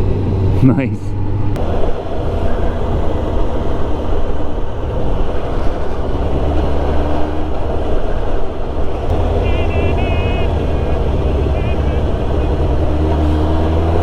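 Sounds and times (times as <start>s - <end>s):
wind noise: 0.0s - 14.0s
motorcycle engine running: 9.1s - 14.0s.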